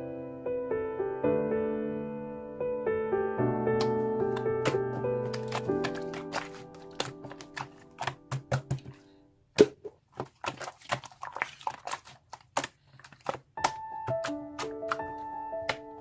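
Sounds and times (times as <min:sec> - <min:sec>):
background music: 0:00.0 - 0:09.2, 0:13.6 - 0:16.0
slime squishing and clicking: 0:05.3 - 0:08.8, 0:10.2 - 0:15.9.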